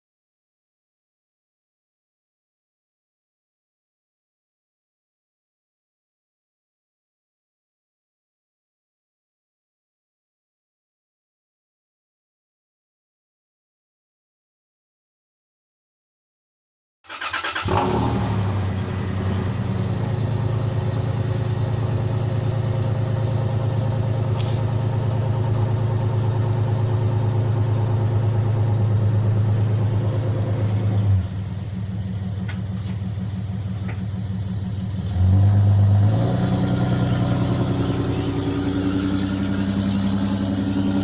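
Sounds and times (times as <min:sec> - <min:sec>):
engine exhaust note: 0:17.6 - 0:41.0.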